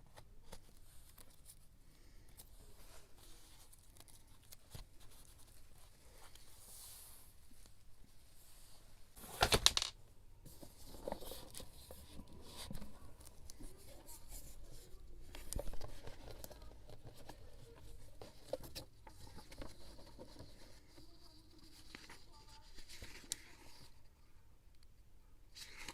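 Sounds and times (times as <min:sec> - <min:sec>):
paper rustling: 0:00.1 - 0:09.9, 0:10.5 - 0:24.0, 0:25.5 - 0:25.9.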